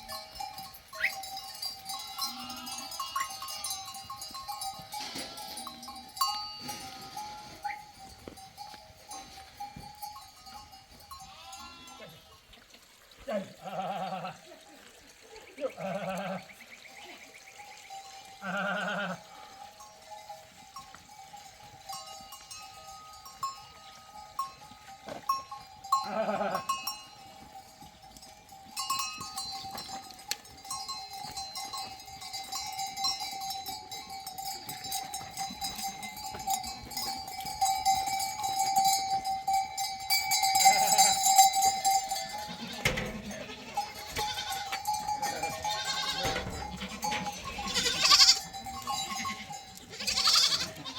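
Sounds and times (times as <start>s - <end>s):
goat bells clanking: 0.0s - 12.7s, 16.2s - 50.9s
goats bleating: 0.9s - 8.0s, 10.5s - 12.4s, 13.3s - 14.6s, 15.6s - 16.6s, 18.4s - 19.9s, 25.9s - 27.1s, 40.6s - 41.3s, 42.1s - 50.9s.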